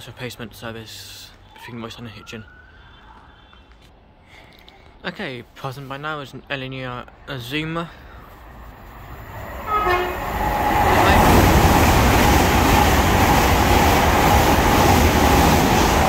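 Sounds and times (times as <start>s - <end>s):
express train passing: 8.2s - 16.0s
train horn note: 9.7s - 11.2s.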